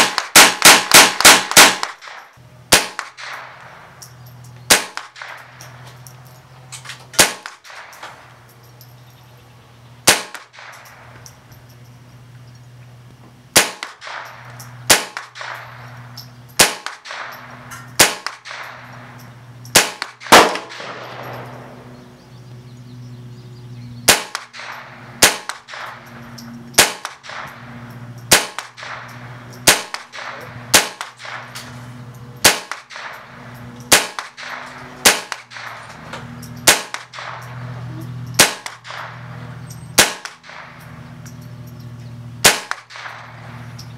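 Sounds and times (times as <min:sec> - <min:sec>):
rifle firing single shots: 0:00.0 - 0:03.8, 0:04.7 - 0:05.8, 0:07.1 - 0:08.2, 0:10.0 - 0:11.2, 0:13.5 - 0:16.0, 0:16.6 - 0:19.0, 0:19.7 - 0:21.9, 0:24.0 - 0:26.2, 0:26.8 - 0:37.7, 0:38.4 - 0:40.9, 0:42.4 - 0:43.7.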